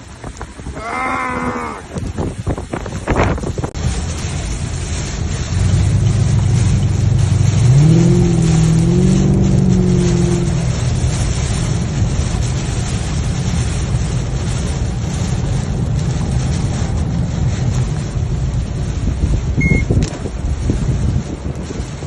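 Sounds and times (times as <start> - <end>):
wind and road noise: 0.0 - 22.0
high beep: 19.6 - 19.9.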